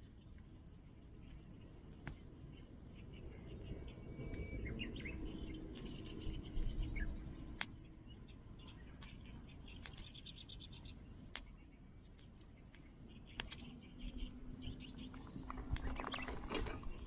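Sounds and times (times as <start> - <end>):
small birds chirping: 0.0 - 17.0
sharp clicks: 9.8 - 10.3, 11.3 - 14.3, 15.5 - 16.8.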